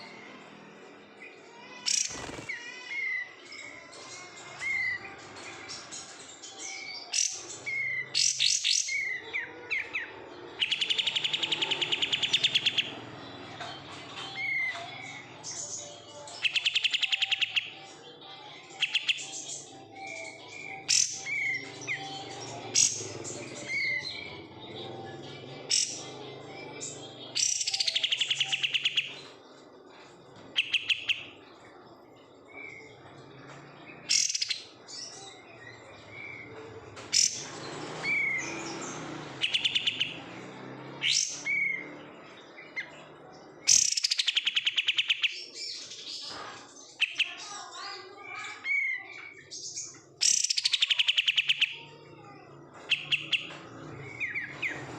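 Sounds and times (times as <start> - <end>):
songbird whistling and trilling: 27.4 - 29.2, 39.4 - 40.2.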